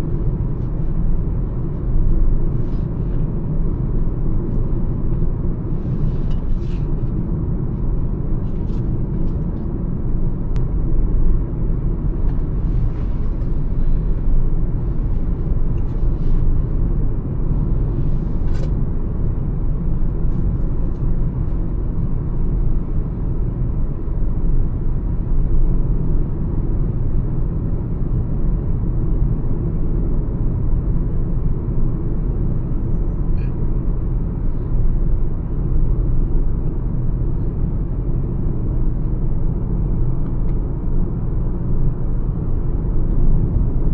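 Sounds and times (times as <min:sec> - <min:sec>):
car cruising road noise: 0:00.0 - 0:43.9.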